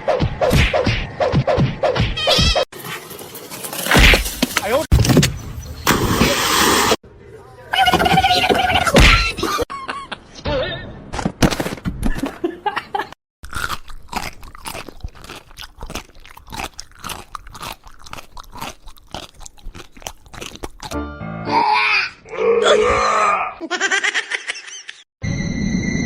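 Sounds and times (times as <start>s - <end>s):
animal crunchy chewing: 13.5s - 21.0s.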